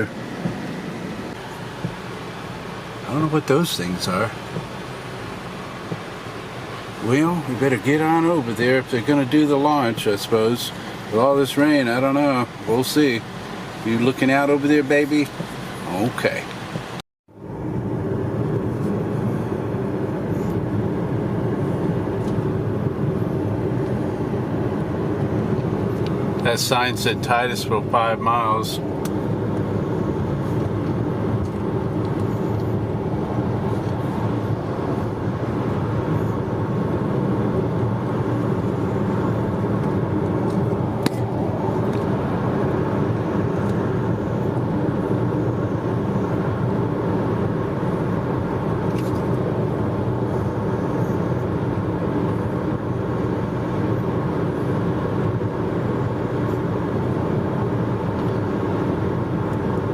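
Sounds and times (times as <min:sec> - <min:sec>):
car engine and tyres rumbling: 0:00.0 - 0:59.9
small click: 0:48.9 - 0:49.3.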